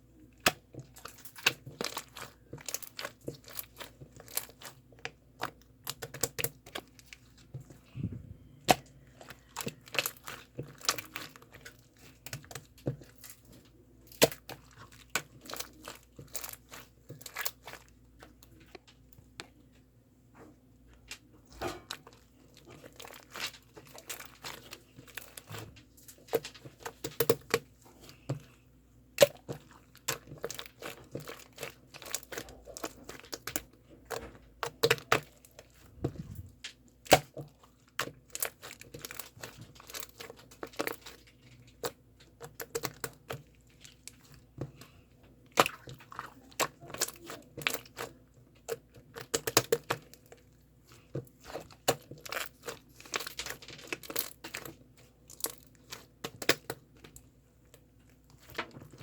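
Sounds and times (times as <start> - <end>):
crinkling and crackling: 0.0 - 59.0
faint steady hum: 0.0 - 59.0.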